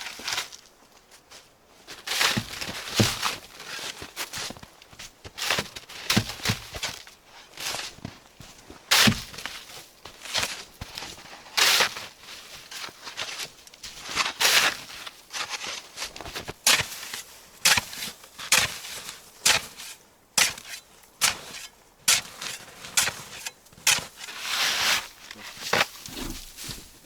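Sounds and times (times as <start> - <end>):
crunching footsteps: 12.8 - 27.0.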